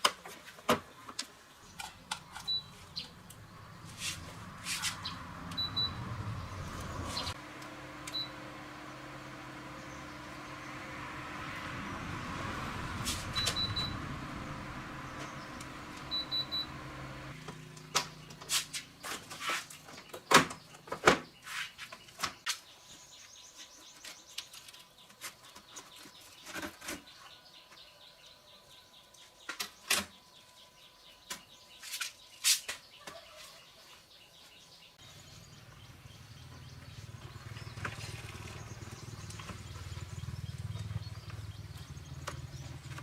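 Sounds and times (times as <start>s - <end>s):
bird chirping: 0.9s - 7.4s, 9.6s - 17.0s, 17.7s - 43.0s
motor running: 6.5s - 17.9s.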